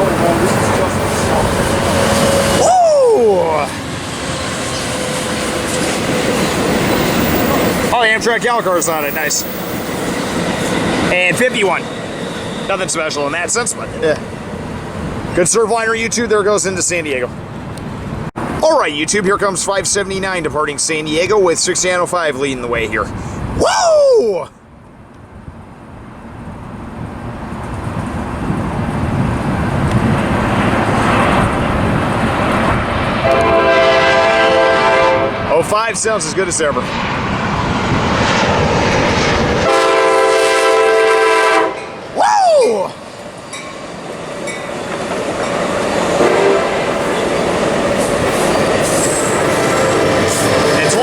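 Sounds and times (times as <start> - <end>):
train wheels on rails: 0.0 - 15.4, 41.7 - 51.0
diesel locomotive rumble: 0.0 - 23.6, 24.6 - 51.0
train horn: 0.4 - 2.6, 33.2 - 35.5, 39.6 - 42.1, 46.2 - 47.0, 49.0 - 51.0.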